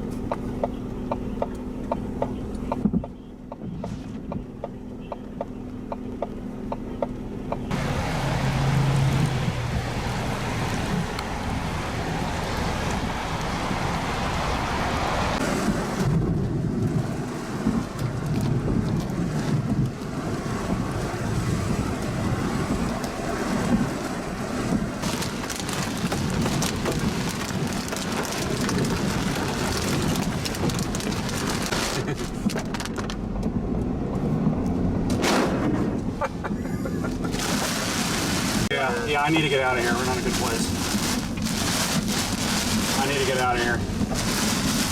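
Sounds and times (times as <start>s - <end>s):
heavy rain in high wind: 7.7s - 33.1s, 37.0s - 44.9s.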